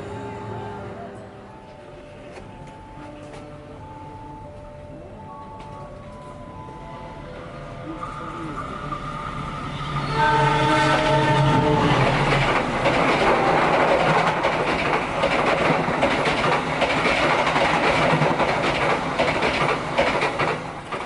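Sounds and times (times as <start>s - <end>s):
train rumbling on track: 0.0s - 21.0s
train horn: 7.9s - 12.4s, 13.1s - 14.1s
wheels clicking over rails: 11.0s - 21.0s.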